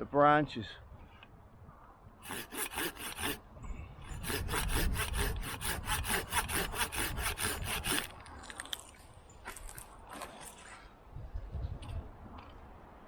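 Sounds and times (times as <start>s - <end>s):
hand saw cutting wood: 2.2s - 3.4s, 4.1s - 8.1s.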